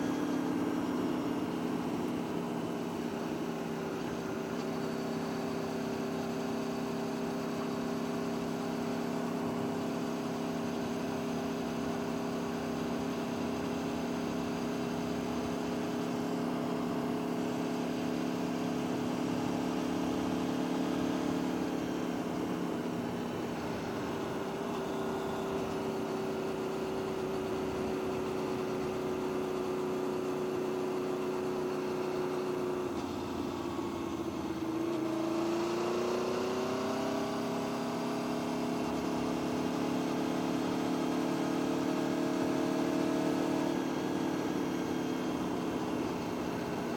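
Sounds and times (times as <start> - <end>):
vehicle engine idling: 0.0 - 35.9.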